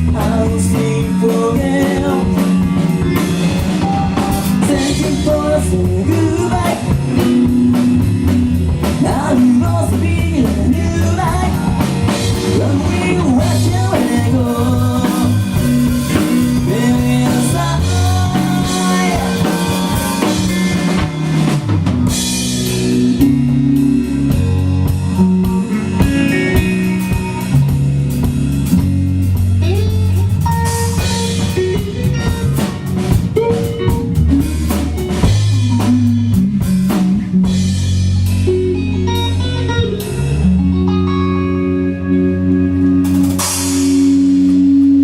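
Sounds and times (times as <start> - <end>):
bass line: 0.0 - 45.0
drum kit: 0.0 - 45.0
guitar: 0.0 - 45.0.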